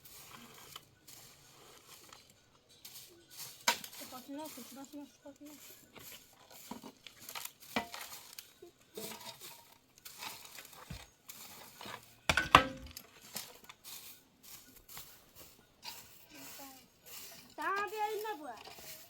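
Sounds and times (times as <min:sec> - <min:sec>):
dishes and utensils clinking: 0:07.2 - 0:11.0, 0:11.7 - 0:13.7
dishes clattering: 0:07.7 - 0:08.2, 0:12.3 - 0:13.0.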